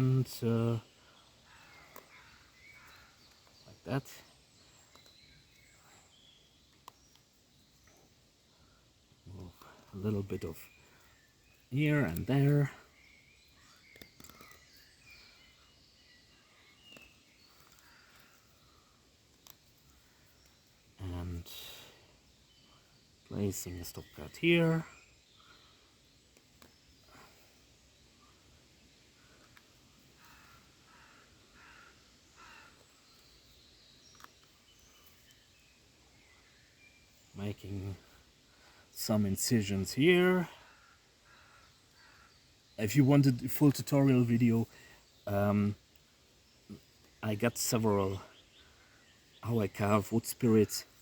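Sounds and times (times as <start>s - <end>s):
faint bird chirps: 0.0s - 51.0s
crow cawing faintly: 30.2s - 32.9s.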